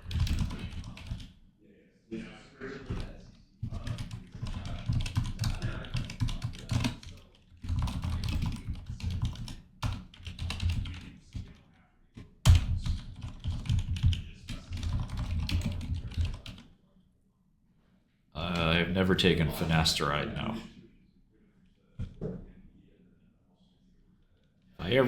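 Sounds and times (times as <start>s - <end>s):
rapid typing on a keyboard: 0.0s - 1.3s, 2.8s - 11.6s, 12.5s - 16.7s.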